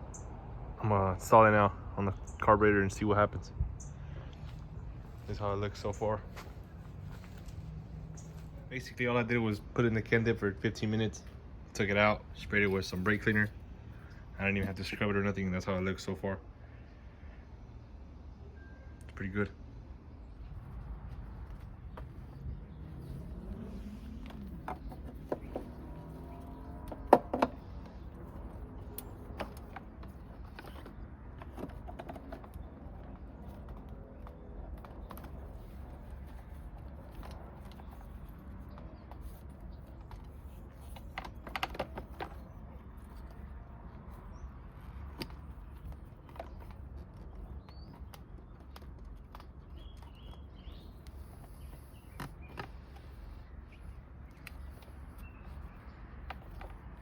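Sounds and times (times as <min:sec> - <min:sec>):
faint bird chirps: 0:18.3 - 0:19.1
hand tools clicking and tapping: 0:23.4 - 0:53.4.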